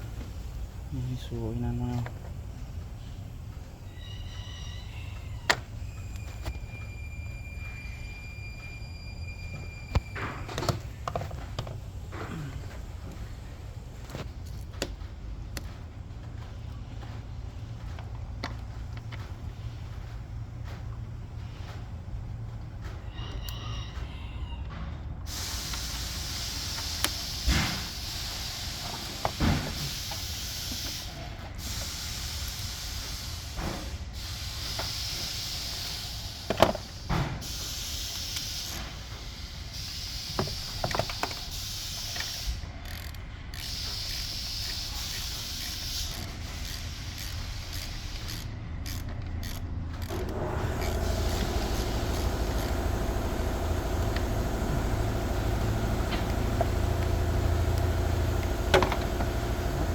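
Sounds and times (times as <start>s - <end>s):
hiss: 25.3s - 43.0s, 43.6s - 48.5s, 50.3s - 59.9s
steady low hum: 45.1s - 59.9s.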